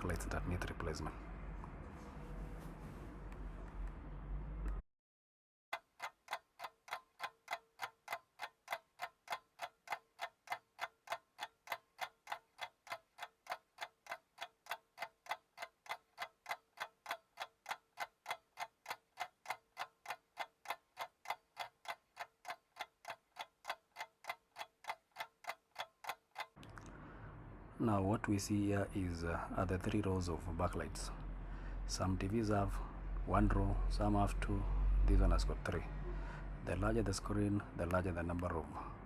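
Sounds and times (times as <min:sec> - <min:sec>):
clock ticking: 0:05.7 - 0:26.6.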